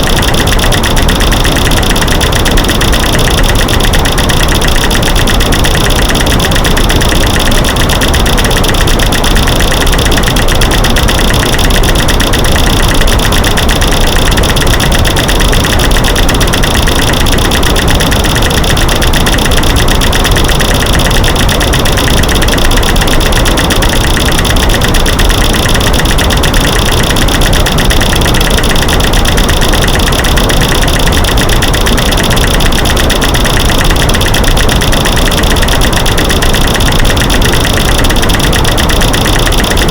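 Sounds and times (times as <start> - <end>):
steady white noise: 0.0 - 1.6
rapid clicks and knocks: 0.0 - 39.9.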